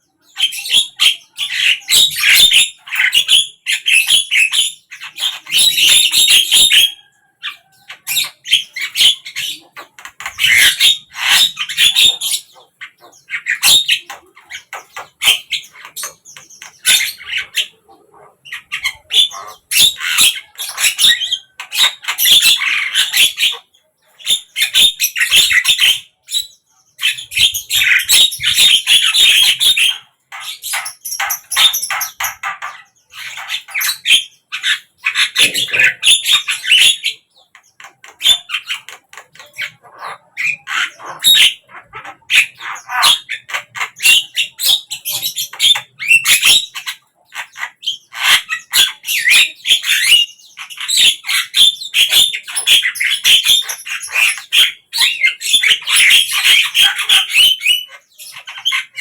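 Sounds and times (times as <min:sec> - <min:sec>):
bird chattering with squawks: 0:00.0 - 0:59.0.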